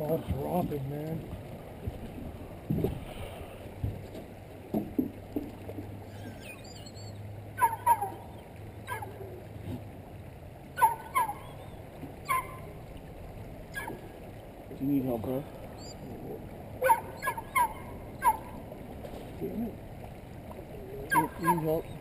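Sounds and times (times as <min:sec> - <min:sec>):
high wavering bird chirp: 0:06.0 - 0:09.0, 0:15.7 - 0:16.1.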